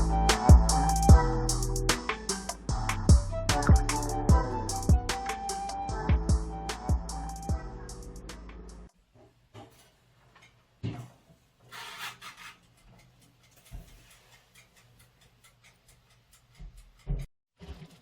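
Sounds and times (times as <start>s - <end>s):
background music: 0.0s - 8.9s.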